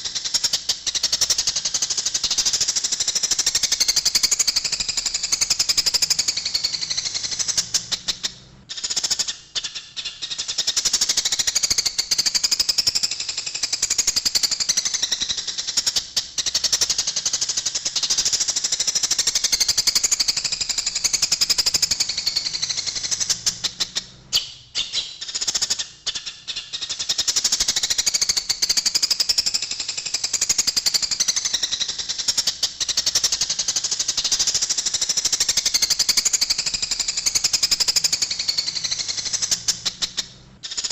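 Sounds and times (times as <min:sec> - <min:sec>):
sparrows chattering and chirping: 0:00.0 - 0:40.9.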